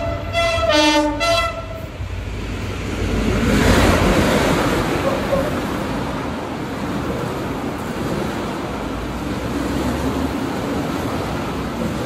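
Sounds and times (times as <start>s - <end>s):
locomotive horn blast: 0.0s - 1.9s
train engine and wheels rumbling: 0.0s - 12.0s.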